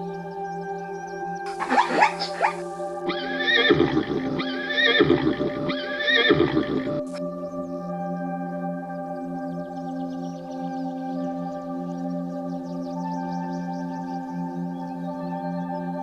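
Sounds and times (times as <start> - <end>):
ambient music drone: 0.0 - 16.0
horse whinnying: 1.5 - 7.2.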